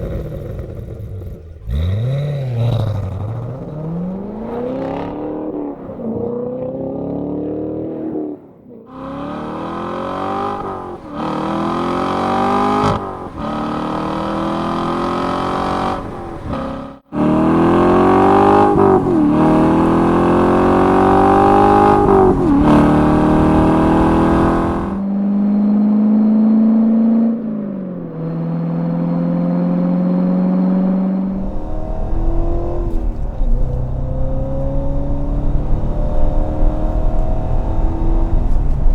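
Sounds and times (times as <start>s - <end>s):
car engine accelerating through gears: 0.0s - 38.9s.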